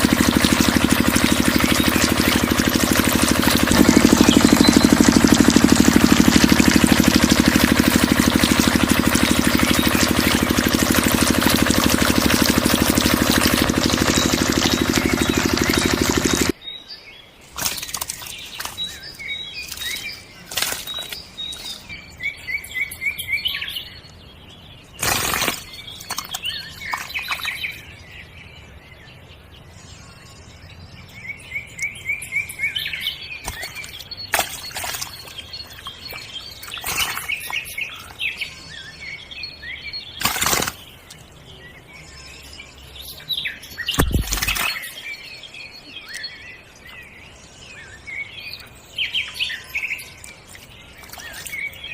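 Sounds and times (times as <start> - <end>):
sharp knocks or splashes: 0.0 - 16.5, 17.6 - 18.8, 19.7 - 21.2, 25.0 - 27.5, 33.4 - 37.6, 40.2 - 40.8, 43.9 - 44.9
small birds chirping: 0.0 - 28.4, 29.0 - 51.9.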